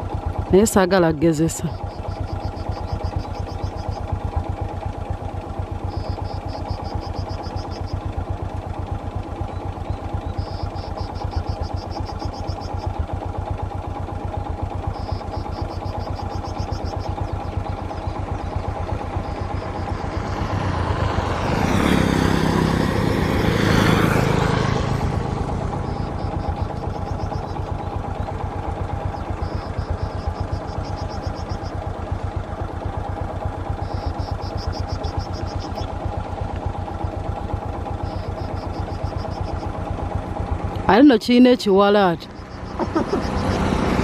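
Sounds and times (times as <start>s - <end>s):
engine idling: 0.0s - 44.0s
vehicle passing close by: 18.1s - 28.3s, 42.2s - 44.0s.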